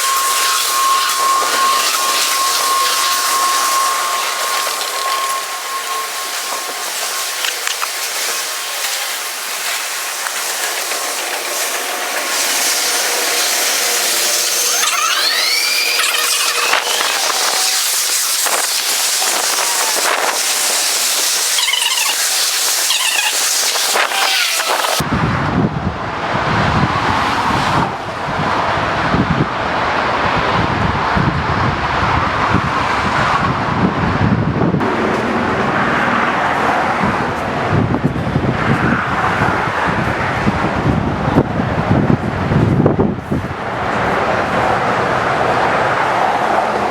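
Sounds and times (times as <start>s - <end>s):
wheel squeals: 0.0s - 25.0s
train running on rails: 0.0s - 46.9s.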